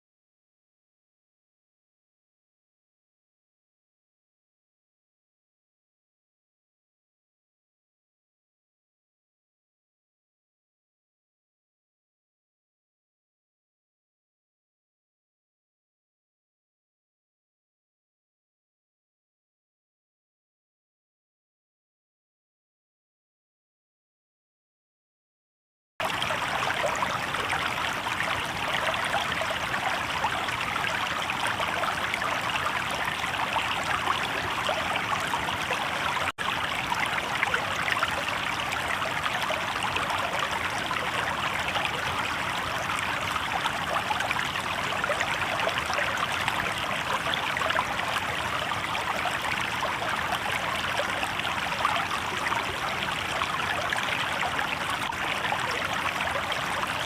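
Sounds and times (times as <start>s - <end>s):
river water babbling over stones: 26.0s - 57.0s.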